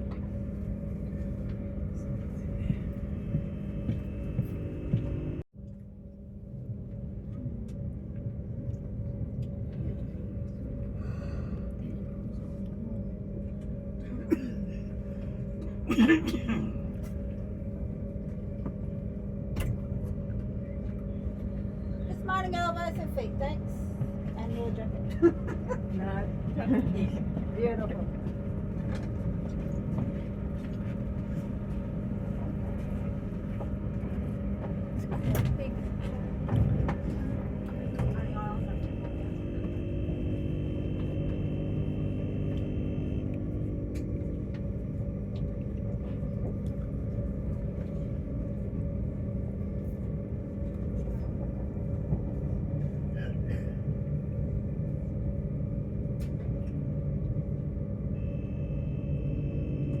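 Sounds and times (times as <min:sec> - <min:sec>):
train carriage rumble: 0:00.0 - 0:05.5, 0:06.4 - 1:00.0
constant droning tone: 0:00.0 - 1:00.0
steady hum: 0:00.0 - 1:00.0.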